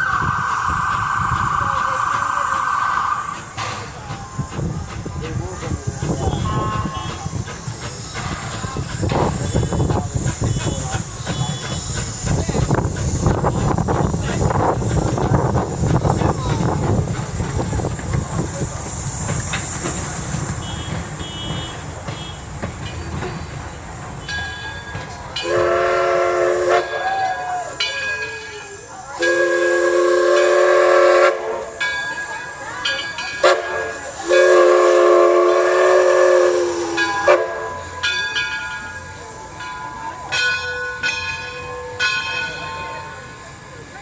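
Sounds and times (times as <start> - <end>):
locomotive whistle blasts: 0.0 - 3.7, 6.1 - 7.5, 9.1 - 12.0, 20.5 - 22.5, 25.4 - 27.9, 29.2 - 31.8, 33.4 - 38.0
locomotive bell ringing: 24.2 - 26.0, 26.6 - 29.7, 31.7 - 34.4, 36.7 - 44.0.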